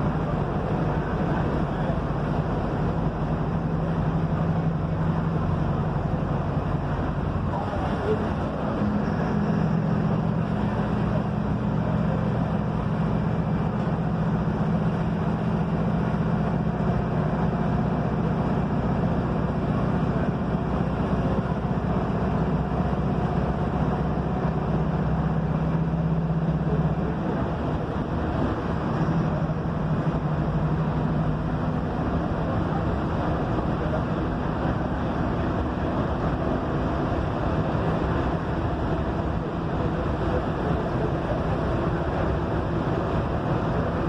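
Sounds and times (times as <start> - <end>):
bus diesel engine droning: 0.0 - 44.0
road noise: 0.0 - 44.0.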